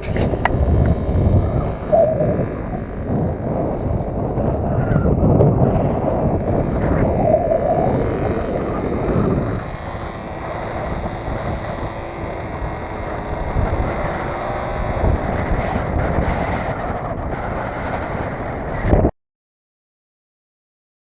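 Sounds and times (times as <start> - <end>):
faint steady tone: 0.0 - 16.7
wind buffeting microphone: 0.0 - 19.1.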